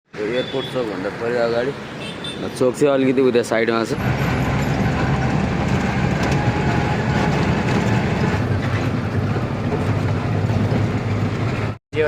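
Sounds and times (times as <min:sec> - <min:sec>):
truck diesel engine running: 0:04.0 - 0:11.8.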